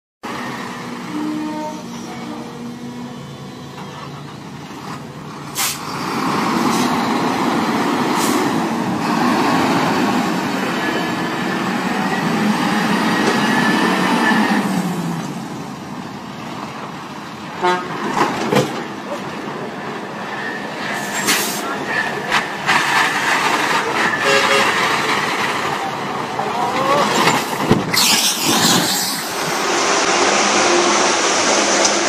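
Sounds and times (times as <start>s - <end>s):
truck and road traffic: 0.2s - 32.0s
vehicle horn: 1.0s - 2.5s, 17.6s - 18.0s, 24.1s - 24.8s.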